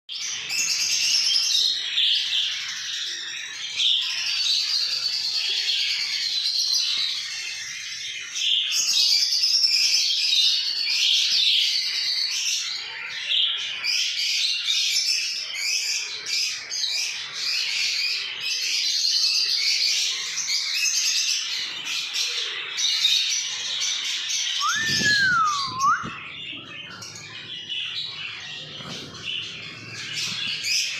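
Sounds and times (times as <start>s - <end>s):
parrots chirping and chattering: 11.8s - 30.9s
rising and falling whistle: 24.6s - 26.2s.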